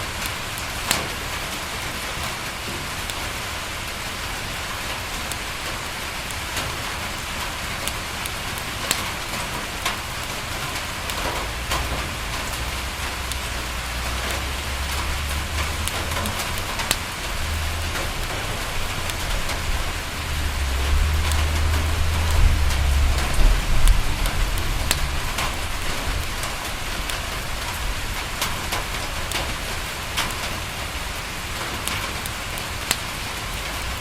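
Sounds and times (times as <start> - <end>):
rain pattering on a window: 0.0 - 34.0
wood fire crackling and popping: 0.0 - 34.0
low rumble: 11.5 - 28.0.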